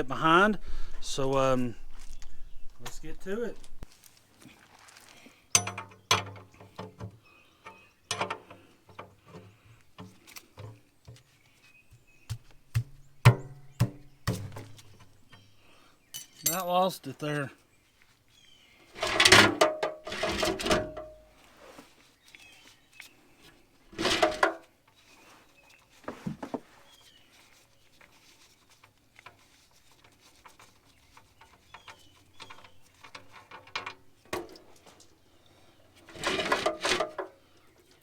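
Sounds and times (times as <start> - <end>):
birds chirping: 0.0 - 3.8, 5.3 - 18.9, 30.8 - 33.4
metal tools clinking and rattling: 5.6 - 6.9, 7.7 - 9.0, 16.2 - 16.9.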